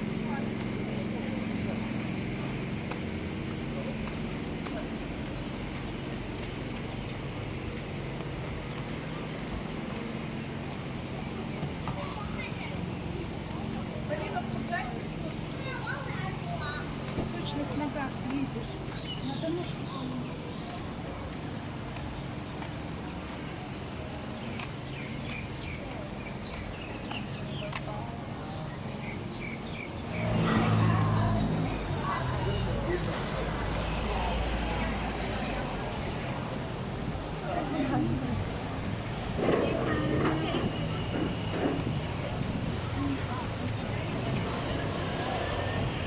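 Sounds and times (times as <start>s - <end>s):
small birds chirping: 0.0s - 30.5s
street traffic: 0.0s - 46.0s
vehicle engine humming: 0.0s - 46.0s.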